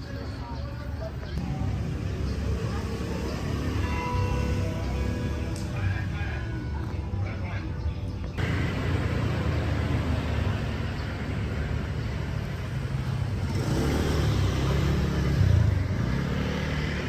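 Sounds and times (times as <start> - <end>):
vehicle engines rumbling: 0.0 - 17.0
vehicle passing close: 8.4 - 17.0.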